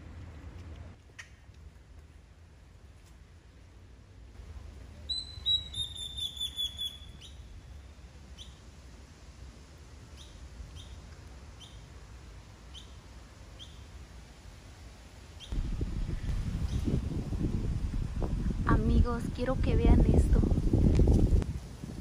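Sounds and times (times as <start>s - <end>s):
bird chirps: 5.0s - 7.8s, 8.4s - 8.6s, 11.6s - 11.9s, 12.7s - 13.0s, 13.6s - 13.9s
bird whistling falling notes: 5.1s - 7.4s.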